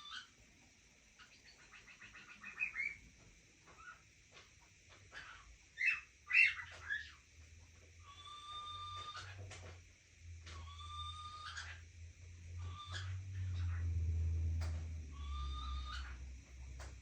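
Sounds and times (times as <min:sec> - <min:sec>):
parrot squawks: 0:00.0 - 0:00.3, 0:01.2 - 0:03.0, 0:05.1 - 0:07.2, 0:08.0 - 0:09.4, 0:10.5 - 0:11.8, 0:12.6 - 0:13.9, 0:15.1 - 0:16.2
parrots chattering: 0:00.0 - 0:00.4, 0:01.1 - 0:03.0, 0:03.6 - 0:07.3, 0:08.0 - 0:09.8, 0:10.4 - 0:17.0.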